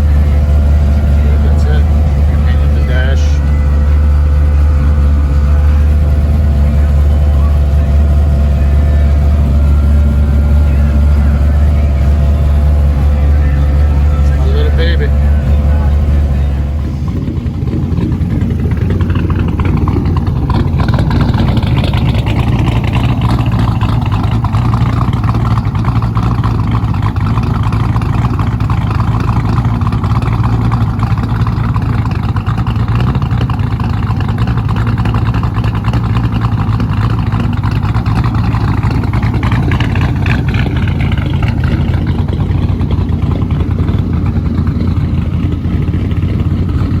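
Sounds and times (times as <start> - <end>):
car engine running: 0.0 - 47.0.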